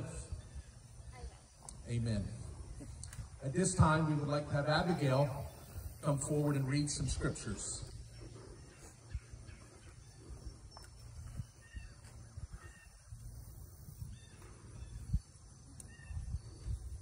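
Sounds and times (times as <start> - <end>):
bird calls: 5.0 - 17.0.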